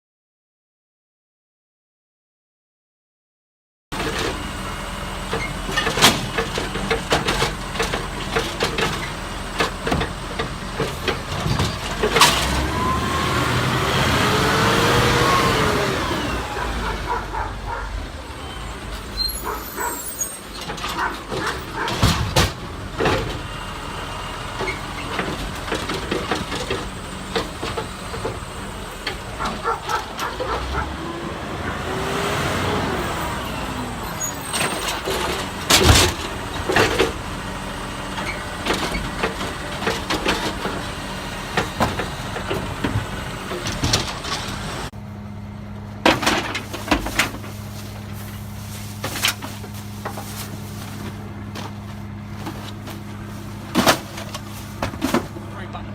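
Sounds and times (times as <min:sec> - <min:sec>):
garbage truck engine running: 0:03.9 - 0:55.9
clanks and knocks: 0:05.3 - 0:12.6, 0:20.5 - 0:23.5, 0:24.6 - 0:31.0.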